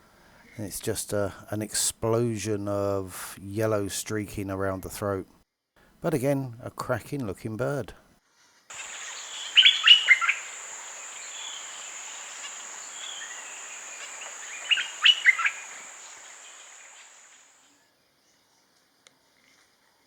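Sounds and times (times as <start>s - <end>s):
bulbul calling: 8.7s - 17.6s
high-pitched insect drone: 8.7s - 17.6s.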